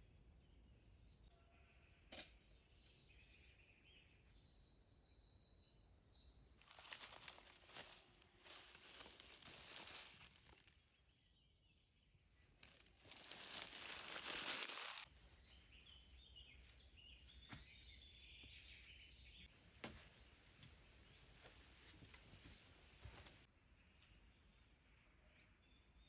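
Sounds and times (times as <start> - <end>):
faint bird chirps: 0.0 - 19.5
rustling crinkling handling noise: 6.6 - 15.1.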